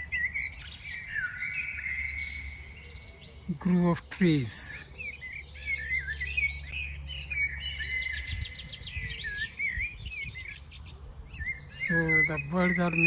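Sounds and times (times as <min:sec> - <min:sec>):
songbirds chirping and singing: 0:00.0 - 0:13.0.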